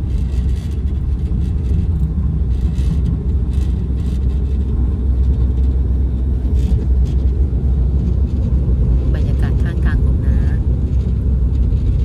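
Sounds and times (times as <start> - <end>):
passenger train rumbling: 0.0 - 12.0.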